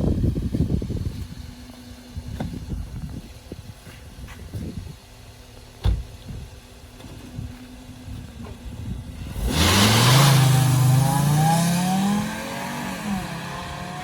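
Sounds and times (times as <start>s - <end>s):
car engine starting and idling: 0.0s - 14.0s.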